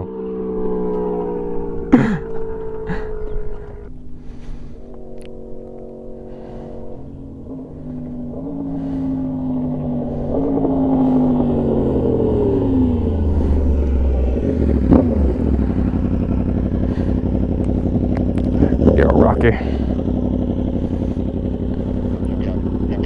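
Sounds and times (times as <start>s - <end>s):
motorcycle engine passing: 0.0s - 23.0s
sharp exhaust crack: 0.3s - 23.0s.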